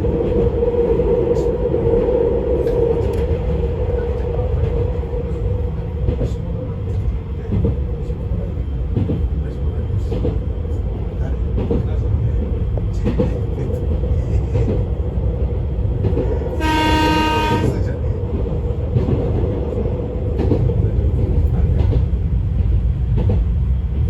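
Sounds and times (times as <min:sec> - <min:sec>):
train wheels rumbling on rail: 0:00.0 - 0:24.0
train horn: 0:16.6 - 0:17.9.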